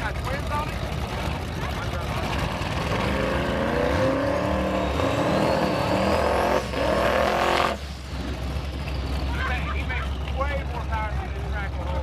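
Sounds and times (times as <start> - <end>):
car engine revving hard: 2.1 - 7.9
high turbo whistle: 3.4 - 9.4.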